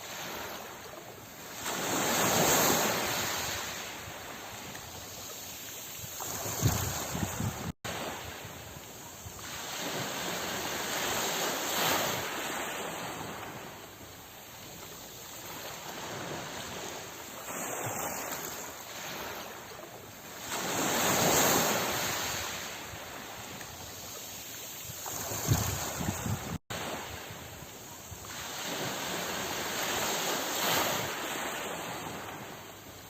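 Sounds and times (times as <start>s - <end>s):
ocean waves breaking: 0.0s - 33.0s.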